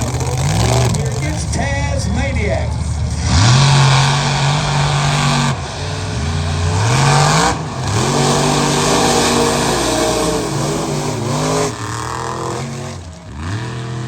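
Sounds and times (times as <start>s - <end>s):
truck engine revving: 0.0s - 14.0s.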